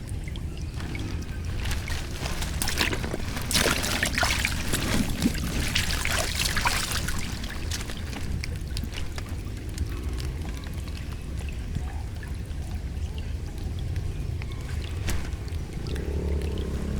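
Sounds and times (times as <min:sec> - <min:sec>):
water splashing and pouring: 0:00.0 - 0:16.9.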